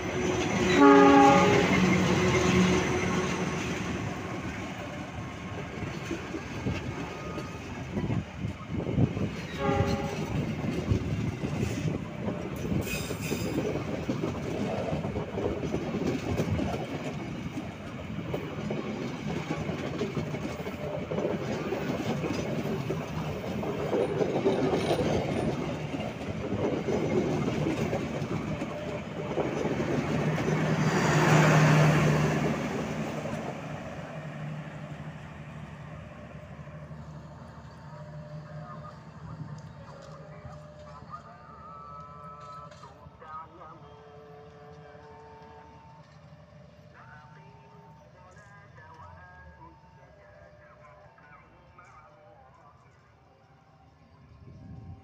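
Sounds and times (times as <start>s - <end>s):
passenger coaches rolling on rails: 0.0s - 55.0s
locomotive horn: 0.7s - 3.4s, 9.5s - 10.5s, 43.7s - 46.1s.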